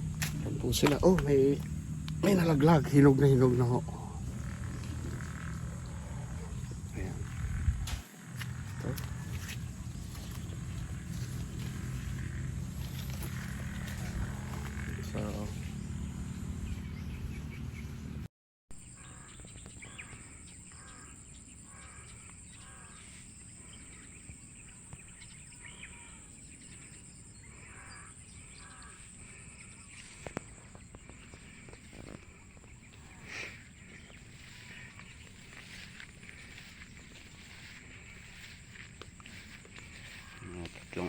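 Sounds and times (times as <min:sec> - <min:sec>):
bird calling: 0:00.0 - 0:18.2, 0:18.9 - 0:41.0
high-pitched hum: 0:00.0 - 0:18.2.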